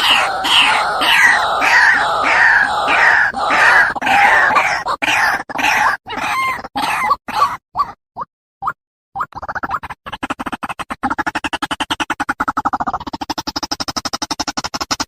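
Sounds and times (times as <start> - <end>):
waterhen calling harshly: 0.0 - 7.5.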